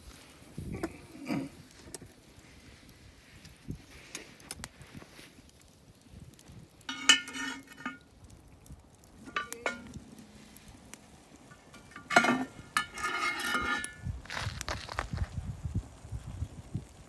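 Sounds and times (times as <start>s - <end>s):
utensils scraping: 6.9s - 8.0s, 9.2s - 10.0s, 11.7s - 14.0s
metal cookware clinking: 6.9s - 8.1s, 9.2s - 10.2s, 11.5s - 14.0s.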